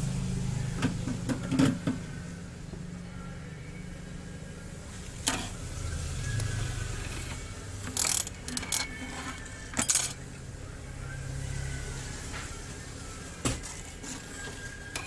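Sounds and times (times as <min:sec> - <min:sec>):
small tools clicking and tapping: 0:07.2 - 0:09.0.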